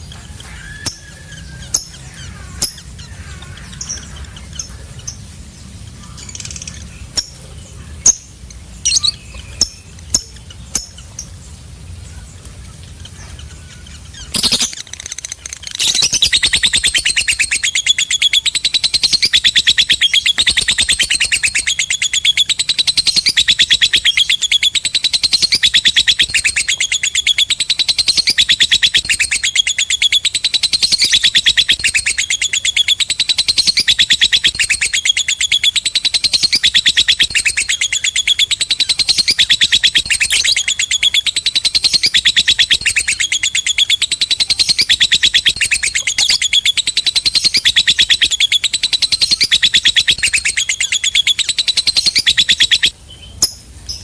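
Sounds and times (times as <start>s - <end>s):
bird chattering trill: 0.0s - 54.0s.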